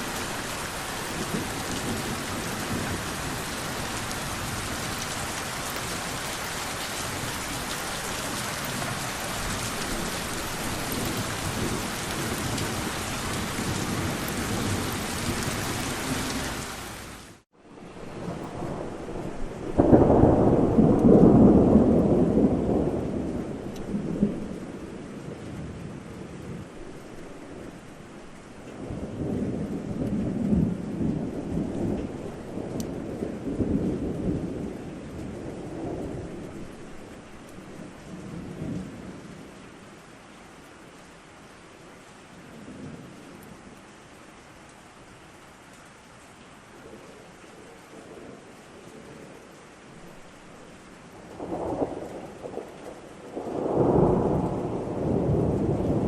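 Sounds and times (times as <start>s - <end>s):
thunder rumbling: 0.0s - 16.8s, 17.8s - 27.8s, 28.8s - 39.5s, 51.1s - 56.0s
steady rain: 0.0s - 56.0s.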